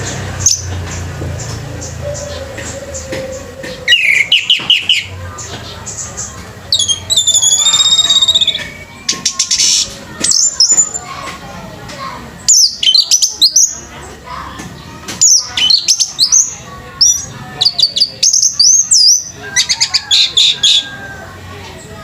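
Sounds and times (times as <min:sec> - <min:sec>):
thrush singing whistled phrases: 0:01.8 - 0:05.2, 0:06.7 - 0:11.1, 0:12.4 - 0:13.9, 0:15.2 - 0:21.3.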